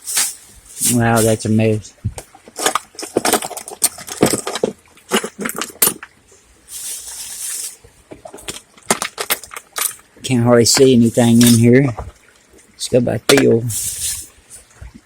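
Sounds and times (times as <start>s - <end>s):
items rummaged knocking and clinking: 0.0s - 12.6s
brief hiss: 13.7s - 14.3s.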